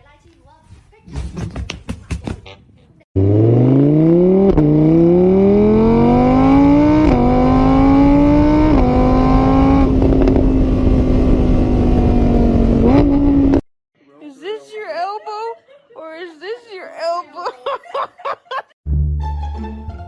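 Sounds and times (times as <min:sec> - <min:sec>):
vehicle engine accelerating hard: 0:03.2 - 0:13.6.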